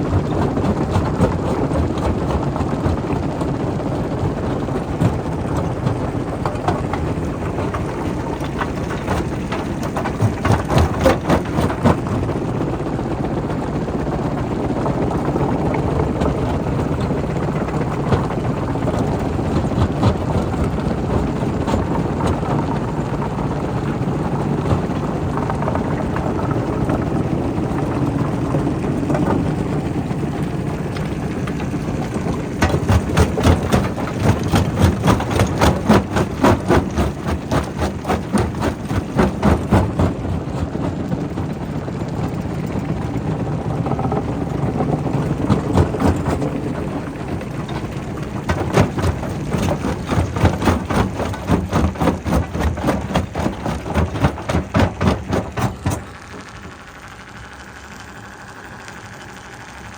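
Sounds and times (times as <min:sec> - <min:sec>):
rock crusher running: 0:00.0 - 0:59.9
rapid even knocking: 0:31.1 - 0:41.4, 0:44.0 - 0:56.3.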